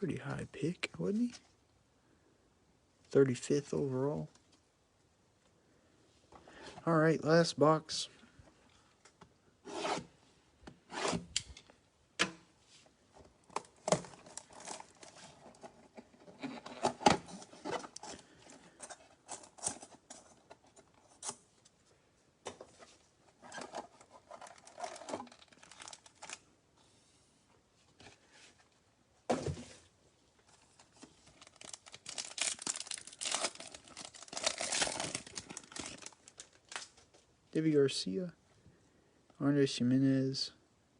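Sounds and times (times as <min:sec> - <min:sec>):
cardboard and wrapper tearing: 0:13.7 - 0:15.6, 0:23.5 - 0:26.4, 0:30.8 - 0:37.0.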